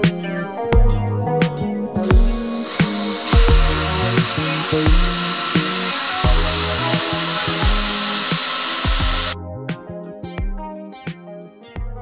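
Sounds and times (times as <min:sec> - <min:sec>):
background music with bass beat: 0:00.0 - 0:12.0
power drill whining through wood: 0:02.0 - 0:09.4.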